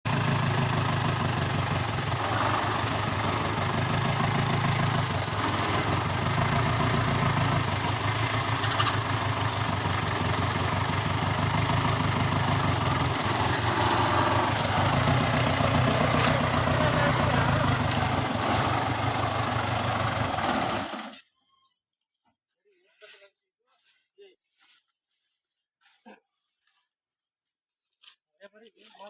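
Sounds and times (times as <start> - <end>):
diesel engine running: 0.0 - 21.2.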